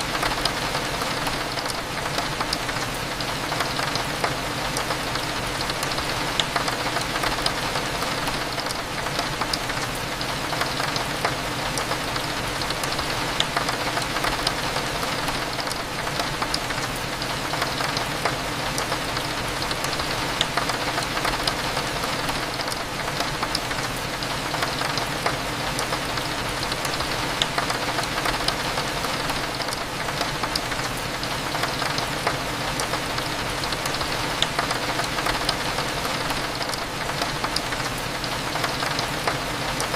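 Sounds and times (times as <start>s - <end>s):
rain hitting a window: 0.0s - 39.9s.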